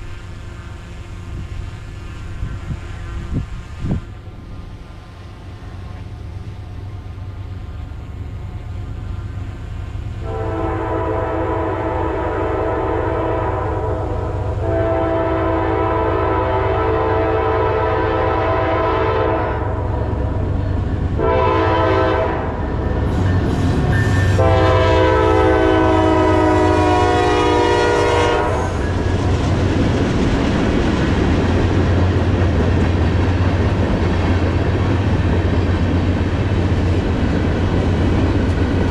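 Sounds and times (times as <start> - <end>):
locomotive air horn: 0.0 - 1.2, 2.0 - 4.0, 10.2 - 20.1, 21.2 - 29.0
locomotive engine rumble: 0.0 - 38.9
rolling train wheels: 0.0 - 38.9.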